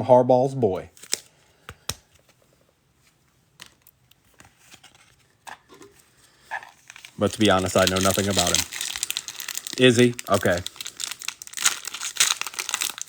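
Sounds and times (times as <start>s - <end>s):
trading cards flipped through: 1.0s - 2.4s.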